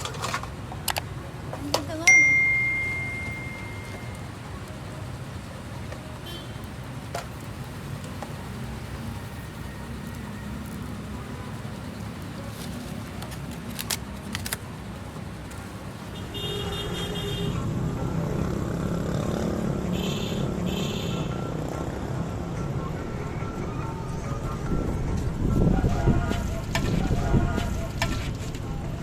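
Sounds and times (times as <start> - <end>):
road traffic rumble: 0.0 - 29.0
metallic ring: 2.1 - 4.2.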